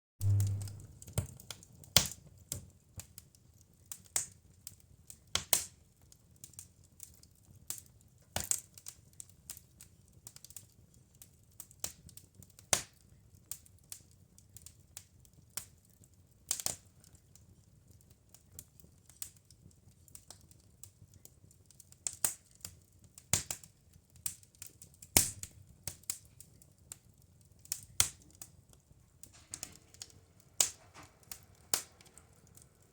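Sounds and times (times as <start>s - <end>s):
faint low hiss: 0.2s - 1.0s
wood fire crackling and popping: 0.2s - 32.9s.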